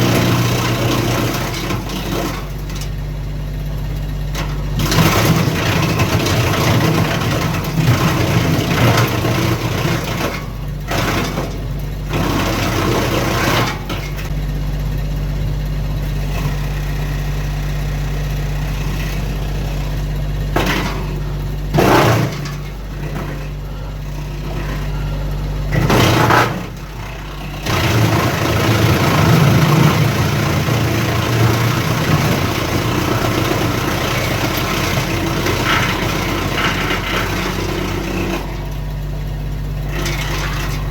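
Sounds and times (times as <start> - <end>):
tractor diesel engine running: 0.0 - 40.9
wood chipper chewing branches: 0.0 - 40.9.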